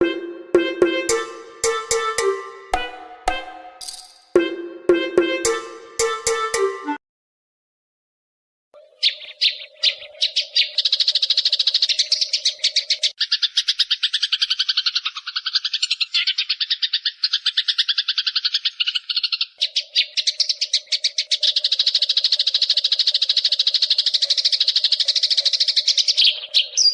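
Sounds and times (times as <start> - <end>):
sparrows chirping harshly: 8.8 - 26.9.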